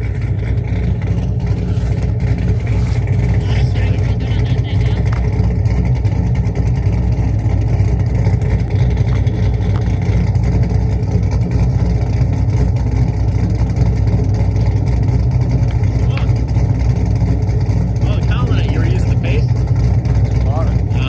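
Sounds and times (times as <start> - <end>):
car engine rumbling idle: 0.0 - 21.0.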